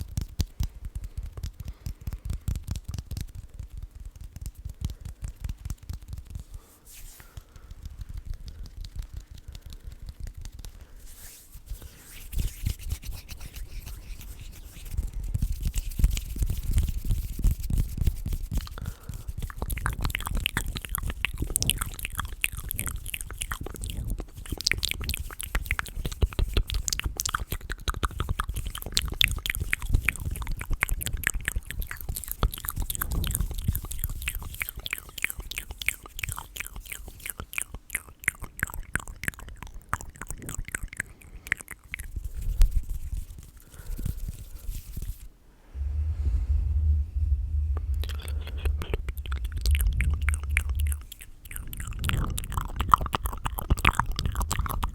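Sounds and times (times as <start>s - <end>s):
wet mouth clicks: 18.6s - 45.2s, 47.2s - 54.9s
low rubbing rumble: 44.8s - 54.9s.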